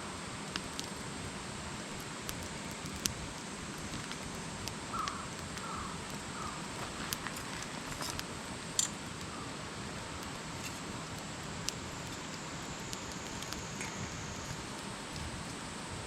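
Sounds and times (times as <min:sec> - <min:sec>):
campfire hissing and crackling: 0:00.0 - 0:16.0.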